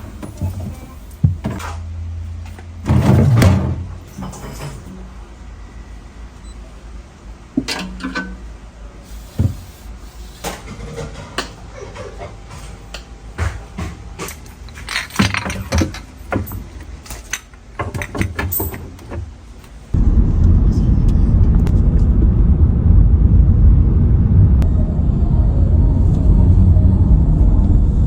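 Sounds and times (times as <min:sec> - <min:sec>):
kitchen items knocking and clinking: 0:13.4 - 0:19.0.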